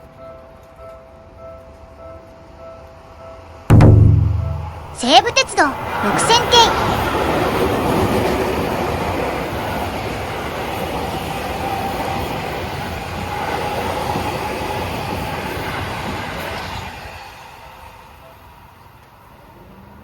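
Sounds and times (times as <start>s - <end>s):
electric train running past: 5.8s - 20.0s.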